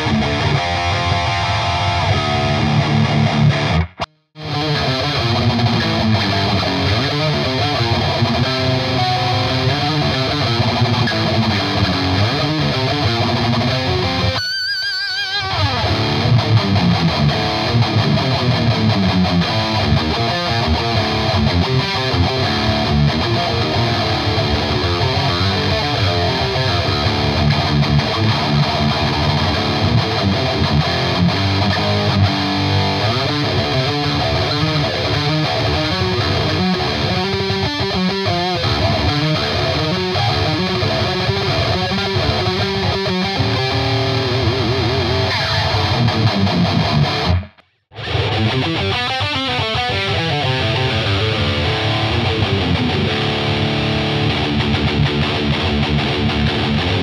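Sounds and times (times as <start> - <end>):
distorted electric guitar riffs: 0.0 - 57.0.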